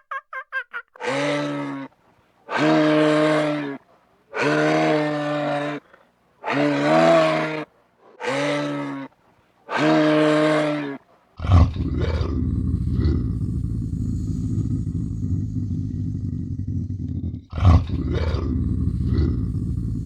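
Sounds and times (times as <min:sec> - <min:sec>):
low rough growling: 0:11.4 - 0:20.0.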